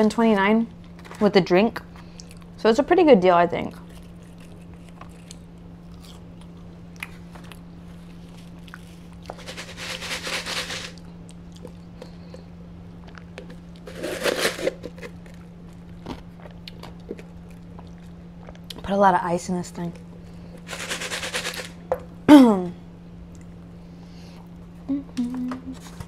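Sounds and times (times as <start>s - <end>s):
steady low hum: 0.0s - 26.0s
soft chewing: 2.0s - 2.6s, 3.7s - 9.4s, 11.0s - 13.8s, 14.8s - 18.8s
paper cup with ice rustling: 8.0s - 11.0s, 13.8s - 15.4s, 20.6s - 21.8s.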